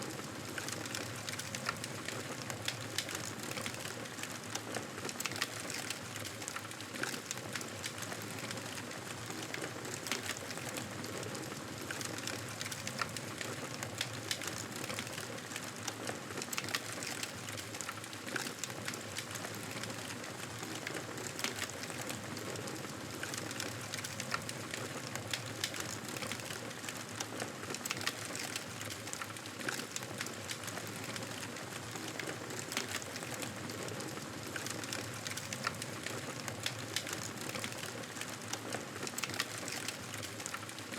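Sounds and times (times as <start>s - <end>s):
campfire crackling and popping: 22.8s - 27.0s, 27.8s - 40.7s.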